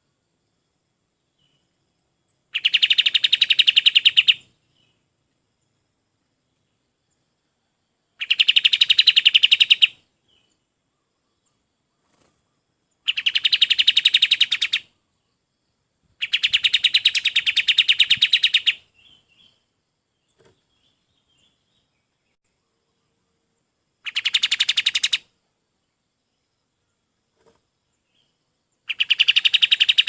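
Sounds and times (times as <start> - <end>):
bird singing fast trills: 2.5 - 5.0, 8.2 - 10.6, 13.0 - 15.2, 16.2 - 19.6, 24.0 - 25.3, 28.1 - 30.0.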